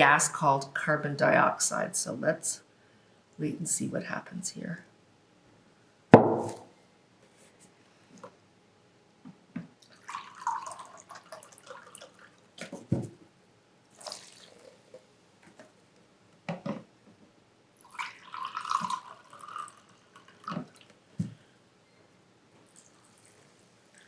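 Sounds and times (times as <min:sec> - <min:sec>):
sharp knocks: 0:06.2 - 0:06.7
liquid dripping: 0:09.8 - 0:12.5, 0:14.0 - 0:15.0, 0:17.8 - 0:20.9
vinegar splashing pour: 0:09.8 - 0:12.5, 0:13.9 - 0:15.0, 0:17.8 - 0:20.9.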